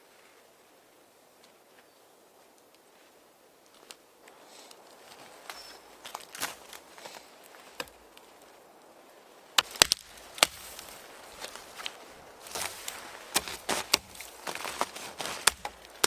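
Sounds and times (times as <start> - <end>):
sharp knocks and cracks: 7.8 - 8.0, 9.6 - 16.0.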